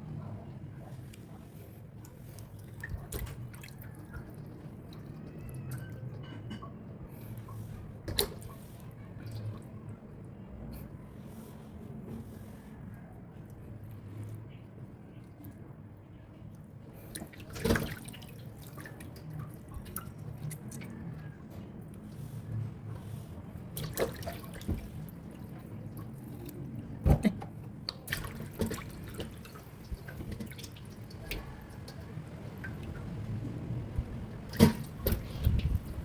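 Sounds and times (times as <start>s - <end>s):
water dripping: 2.0s - 6.8s, 27.7s - 36.0s.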